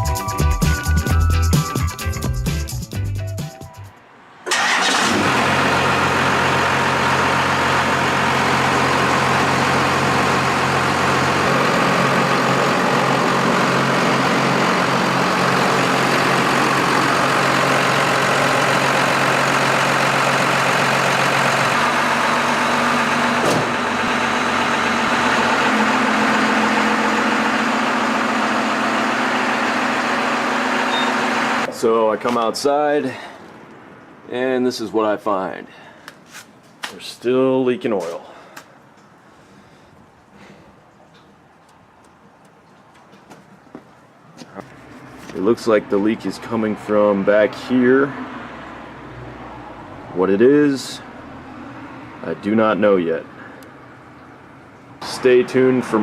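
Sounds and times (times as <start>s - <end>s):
diesel engine idling: 4.5s - 32.2s, 51.0s - 56.0s.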